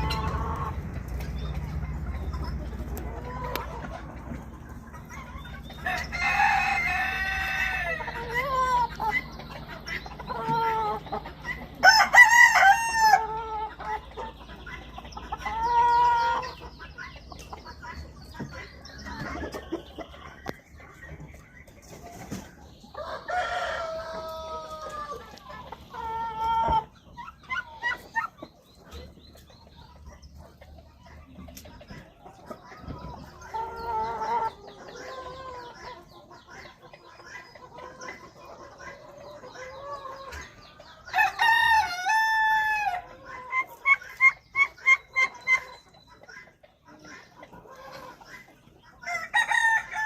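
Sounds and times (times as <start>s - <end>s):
chicken clucking: 0.0s - 50.0s
rooster crowing: 5.8s - 8.0s, 11.8s - 13.3s, 49.1s - 50.0s.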